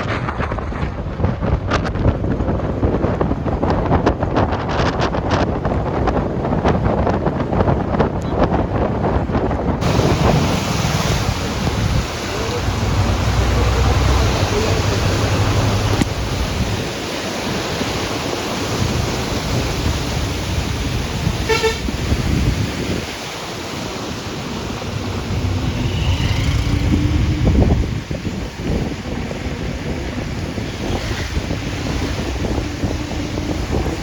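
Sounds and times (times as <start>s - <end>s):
steady rushing noise: 0.0s - 34.0s
wind buffeting microphone: 0.0s - 34.0s
vehicle horn toot: 21.4s - 22.0s.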